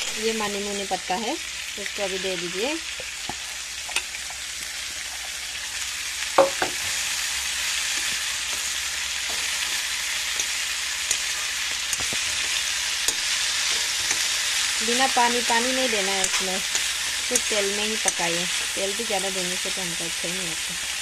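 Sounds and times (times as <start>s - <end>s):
potatoes sizzling in oil: 0.0s - 21.0s
spoon knocking on pan: 6.4s - 6.8s
spoon scraping pan: 7.8s - 18.8s.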